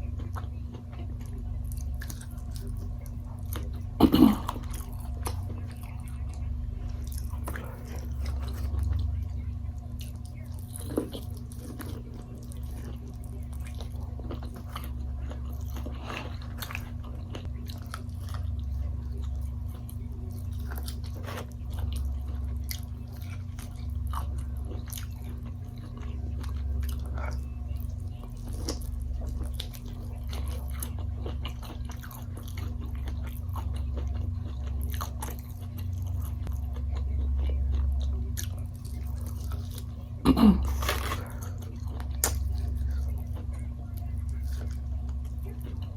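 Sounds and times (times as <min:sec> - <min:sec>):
low hum: 0:00.0 - 0:45.9
person chewing and biting food: 0:09.9 - 0:45.9.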